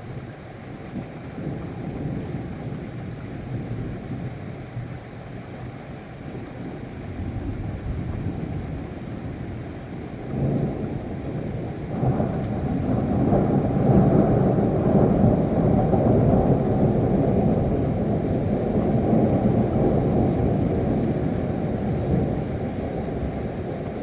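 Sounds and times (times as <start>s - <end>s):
rain falling: 0.0s - 24.0s
thunder rumbling: 10.3s - 24.0s.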